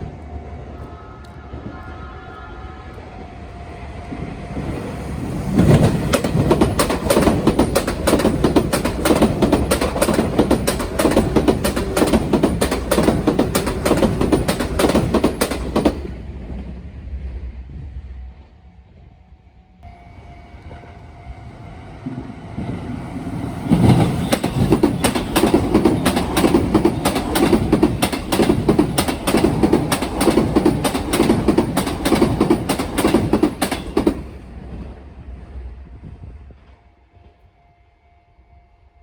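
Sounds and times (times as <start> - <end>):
train wheels clacking over rail joints: 5.5 - 16.2, 23.6 - 34.5.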